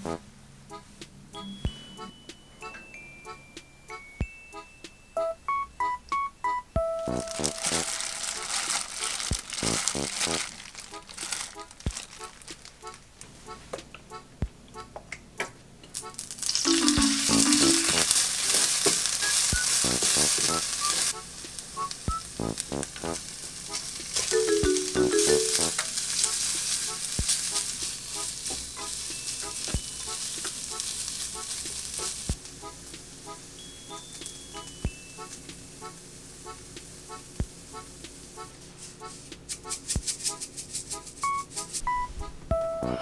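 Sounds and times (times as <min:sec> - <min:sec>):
soft background music: 0:00.0 - 0:43.0
squid sizzling in a frying pan: 0:07.2 - 0:11.4, 0:16.2 - 0:32.4.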